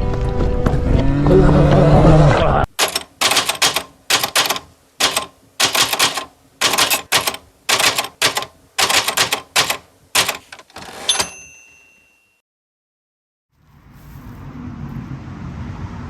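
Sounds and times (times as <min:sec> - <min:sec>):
typewriter keys clacking: 0:02.7 - 0:11.6.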